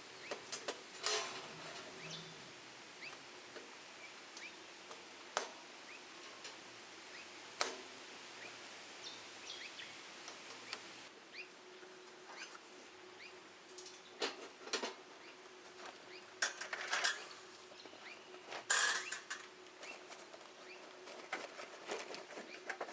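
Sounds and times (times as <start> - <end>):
faint steady hum: 0.0 - 22.9
rustles: 0.0 - 22.9
faint bird chirps: 1.8 - 3.2.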